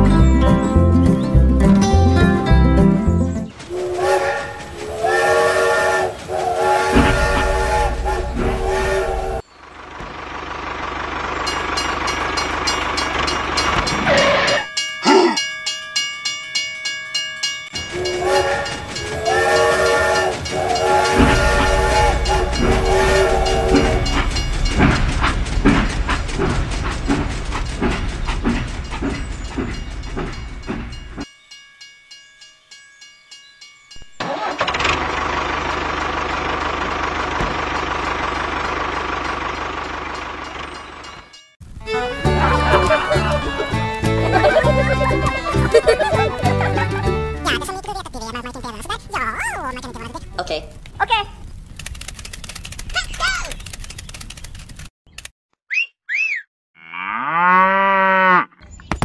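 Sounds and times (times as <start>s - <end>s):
steam train chugging: 0.0s - 31.3s, 34.0s - 51.2s
steam hissing: 3.7s - 9.4s, 17.9s - 31.0s
train whistle blowing: 3.7s - 9.4s, 17.9s - 24.4s.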